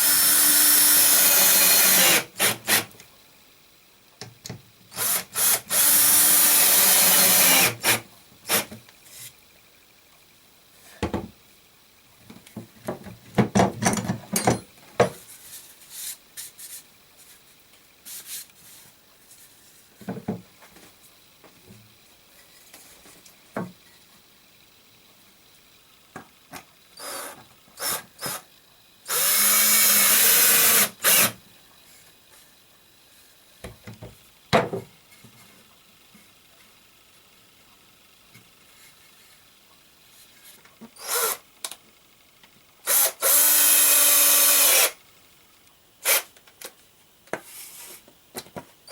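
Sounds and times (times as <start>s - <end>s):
power tool running: 0.0s - 2.9s, 5.0s - 8.7s, 27.0s - 28.4s, 29.1s - 31.4s, 41.0s - 41.4s, 42.8s - 45.0s.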